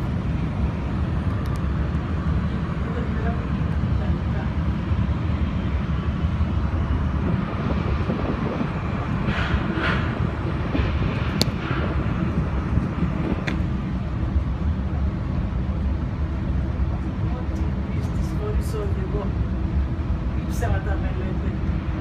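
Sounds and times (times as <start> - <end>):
train rumble: 0.0 - 22.0.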